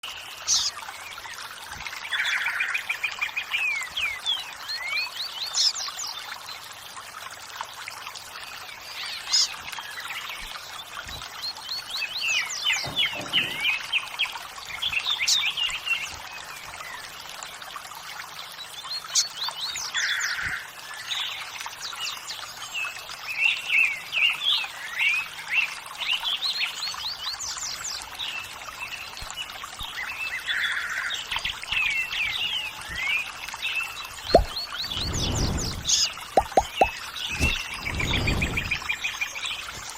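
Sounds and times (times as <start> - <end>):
running water rushing: 0.0 - 39.9
birds chirping and singing: 10.3 - 14.2, 31.4 - 39.8.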